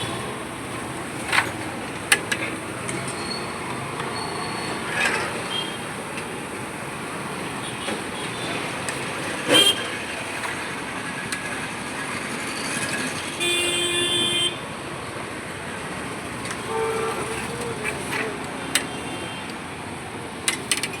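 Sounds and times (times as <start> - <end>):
road traffic hum: 0.0 - 21.0
vehicle horns: 4.3 - 6.0, 9.4 - 10.1, 13.3 - 14.6, 16.5 - 19.6.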